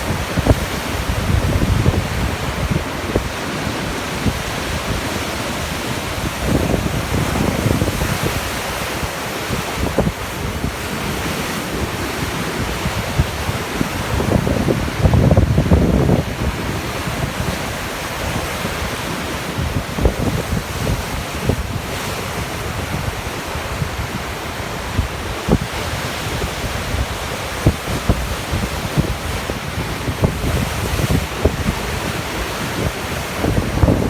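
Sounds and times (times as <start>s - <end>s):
sea waves breaking: 0.0s - 34.0s
wind buffeting microphone: 0.0s - 34.0s.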